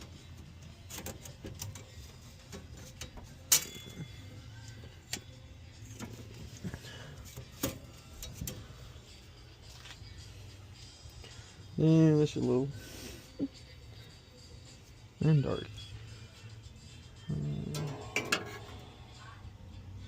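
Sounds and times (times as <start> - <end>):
steady low hum: 12.7 - 20.0.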